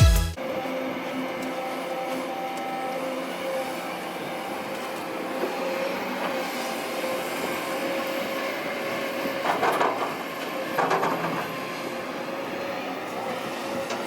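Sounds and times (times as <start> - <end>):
excavator running: 0.0 - 14.0.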